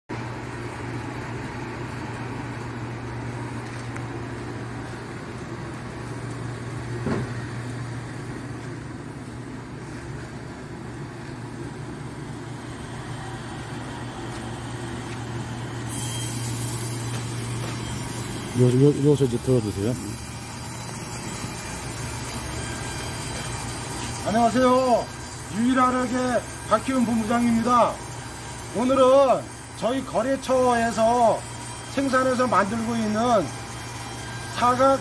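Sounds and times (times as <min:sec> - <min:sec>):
heater and blower hum: 0:00.1 - 0:35.0.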